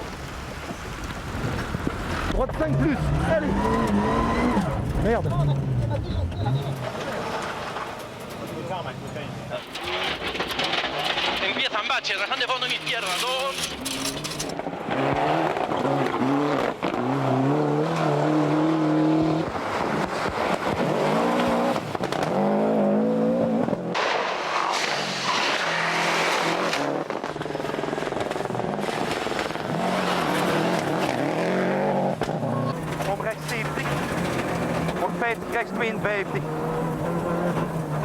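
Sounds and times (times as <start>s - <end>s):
car engine revving hard: 2.1s - 6.6s, 14.3s - 23.9s, 24.6s - 38.0s.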